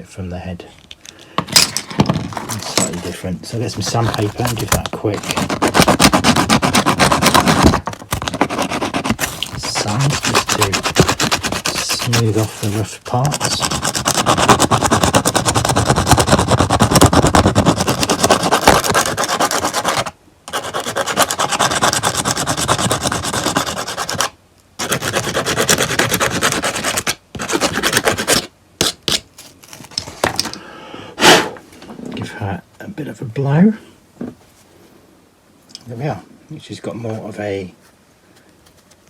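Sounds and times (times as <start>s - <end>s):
sandpaper rubbing on plastic: 2.4s - 30.1s.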